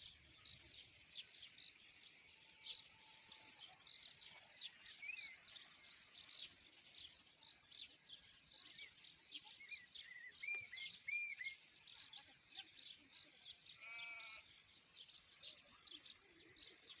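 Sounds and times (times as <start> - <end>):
songbirds chirping and trilling: 0.0 - 17.0
farm animal bleat: 13.5 - 14.7.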